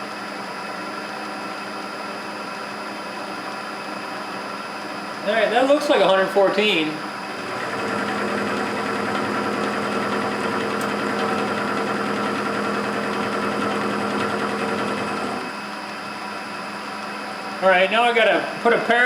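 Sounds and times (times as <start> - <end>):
milling machine humming: 7.0 - 17.5
cutter cutting metal: 7.4 - 15.5.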